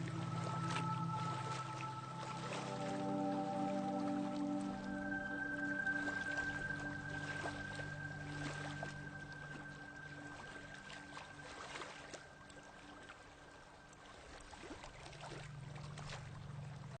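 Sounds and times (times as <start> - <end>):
small waves washing on beach: 0.0 - 16.9.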